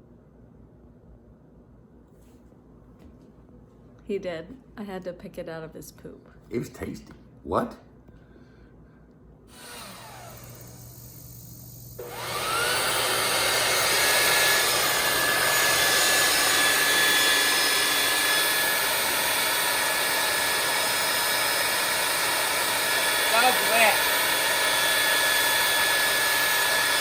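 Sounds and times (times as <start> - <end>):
appliance motor whirring: 9.5 - 27.0.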